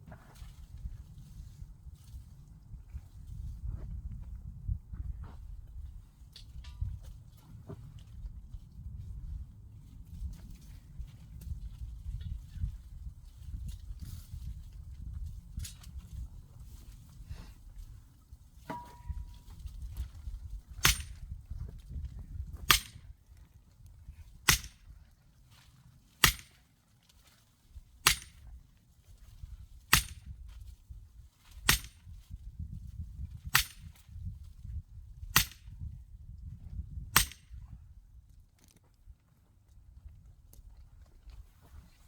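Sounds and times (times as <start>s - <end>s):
axe striking a log: 18.7s - 19.3s, 20.8s - 21.2s, 22.6s - 23.1s, 24.5s - 24.8s, 26.2s - 26.6s, 28.0s - 28.5s, 29.9s - 30.3s, 31.7s - 32.0s, 33.5s - 34.1s, 35.4s - 35.7s, 37.2s - 37.5s.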